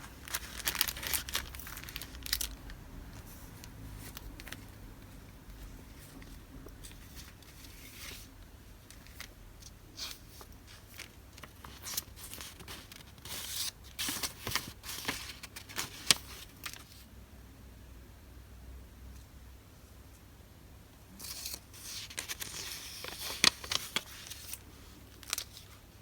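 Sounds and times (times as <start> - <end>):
paper and plastic wrapping rustling: 0.0 - 4.7, 10.0 - 17.1, 21.2 - 25.9.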